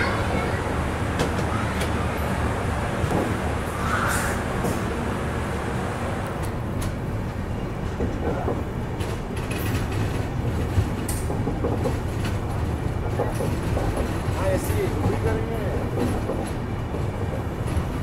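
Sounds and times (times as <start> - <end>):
train wheels rumbling on track: 0.0 - 18.0
wheels clicking over rail joints: 6.2 - 18.0.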